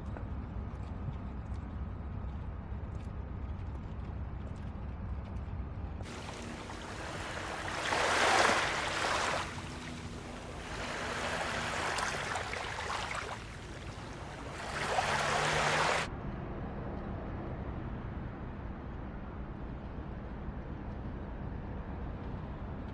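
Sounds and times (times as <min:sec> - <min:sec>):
waves washing on a beach: 0:06.0 - 0:16.1.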